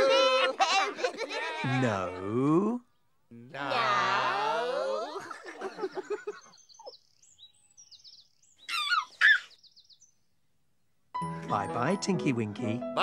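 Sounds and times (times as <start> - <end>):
voices: 0.0 - 6.4
birds chirping: 5.0 - 13.0.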